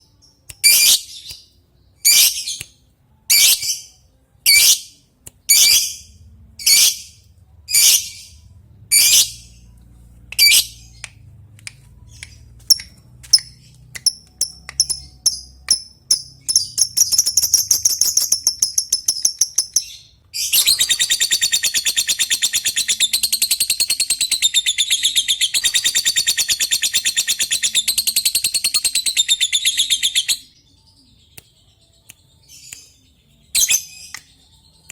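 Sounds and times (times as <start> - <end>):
bird chattering trill: 20.5 - 30.4.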